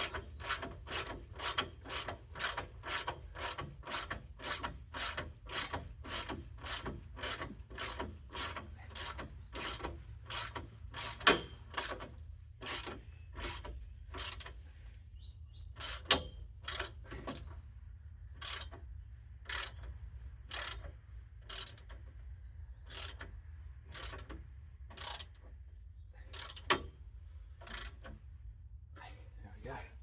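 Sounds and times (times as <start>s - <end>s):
ratchet spanner clicking: 0.0s - 14.5s, 15.8s - 17.4s, 18.4s - 18.8s, 19.5s - 19.9s, 20.5s - 22.0s, 22.9s - 23.3s, 23.9s - 25.4s, 26.3s - 26.9s, 27.6s - 28.2s
steady low hum: 0.0s - 30.0s.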